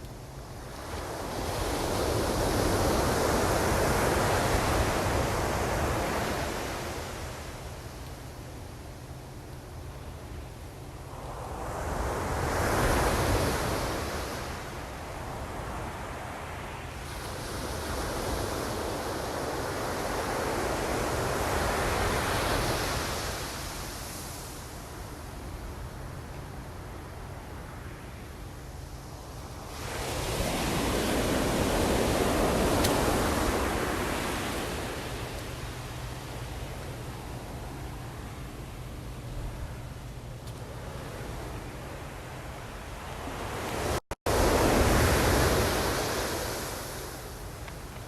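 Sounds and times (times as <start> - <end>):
ocean wave washing: 28.9 - 48.0
ocean wave breaking: 29.7 - 38.1.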